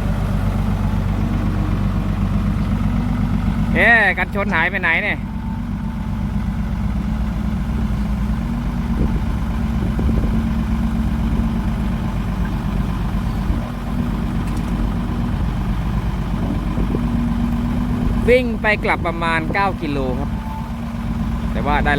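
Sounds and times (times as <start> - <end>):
diesel engine idling: 0.0 - 21.9.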